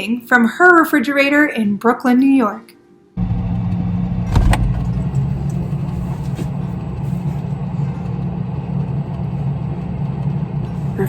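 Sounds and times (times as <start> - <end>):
low hum: 3.2 - 11.0.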